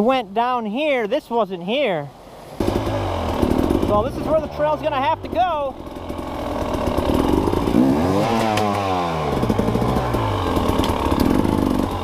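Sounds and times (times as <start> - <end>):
dirt bike engine revving: 2.6 - 12.0.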